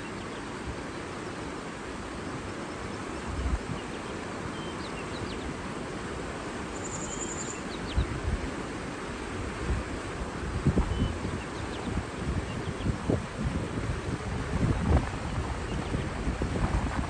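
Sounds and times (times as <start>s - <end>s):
water rushing: 0.0s - 17.0s
faint bird chirps: 4.5s - 5.4s, 6.7s - 8.2s
wind thumps on microphone: 9.6s - 17.0s.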